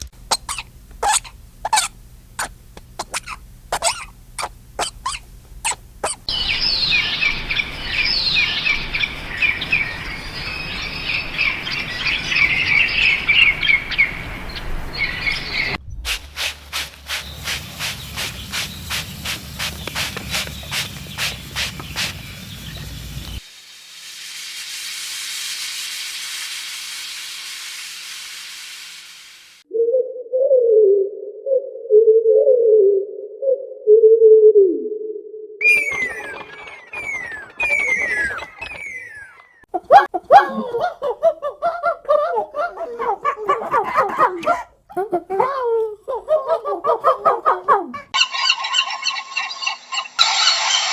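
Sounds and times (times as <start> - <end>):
steady hiss: 0.0 - 29.6
small birds chirping: 0.2 - 23.5, 35.6 - 44.7.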